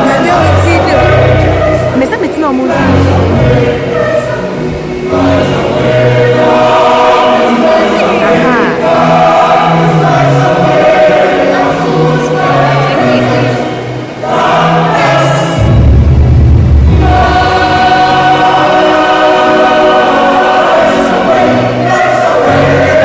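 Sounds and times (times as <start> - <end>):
choir singing chords: 0.0 - 23.0
low rumble: 15.6 - 17.6.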